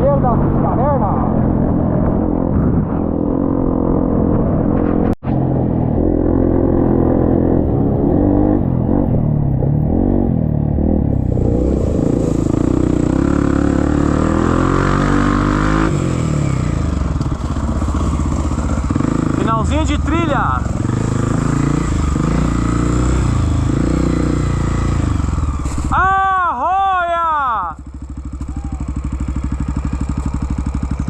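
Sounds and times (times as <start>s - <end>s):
motorcycle engine revving: 0.0s - 26.3s, 27.4s - 31.0s.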